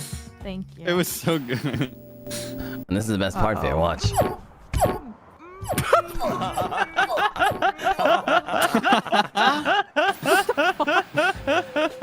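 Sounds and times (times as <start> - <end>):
person making squeaky giggles: 5.5 - 8.6.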